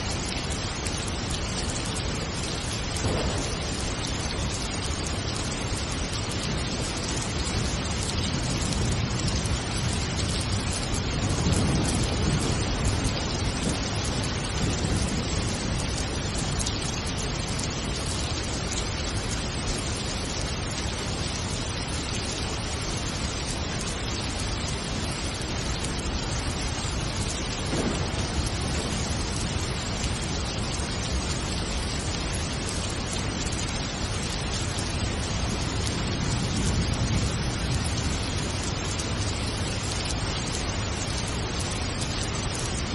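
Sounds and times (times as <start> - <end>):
heavy rain hissing: 0.0 - 42.9
low thunder rumbling: 2.9 - 6.1, 7.1 - 18.1, 26.0 - 32.8.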